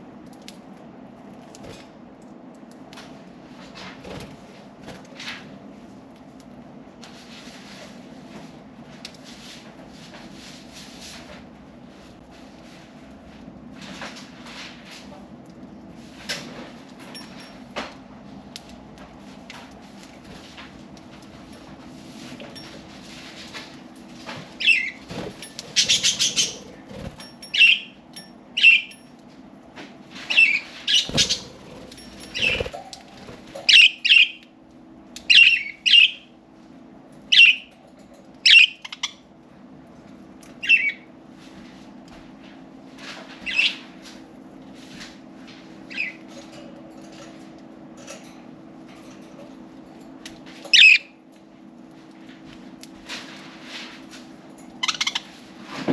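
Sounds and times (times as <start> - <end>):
wings flapping: 24.6 - 27.4, 30.9 - 33.8
budgerigars chirping: 25.7 - 26.8.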